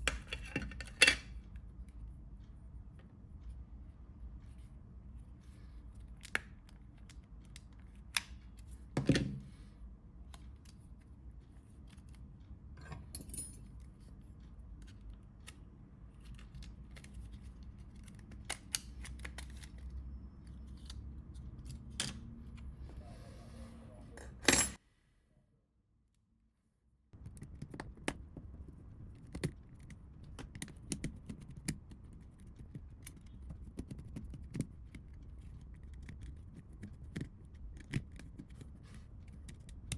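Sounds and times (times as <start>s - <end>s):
small clicks taps and scrapes: 13.8s - 21.8s, 27.2s - 39.9s.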